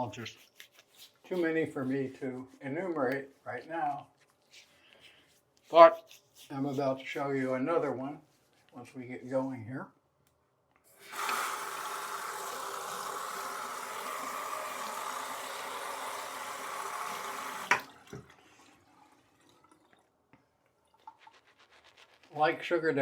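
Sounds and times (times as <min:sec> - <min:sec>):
water running from a tap: 0:10.9 - 0:20.1, 0:20.8 - 0:22.5
tap shutting off click: 0:17.6 - 0:17.9.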